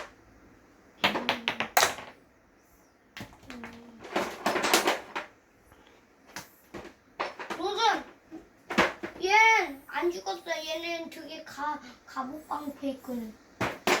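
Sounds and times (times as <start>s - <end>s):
plastic toys clattering: 1.0s - 2.2s, 3.2s - 5.4s, 6.3s - 9.4s, 13.6s - 14.0s.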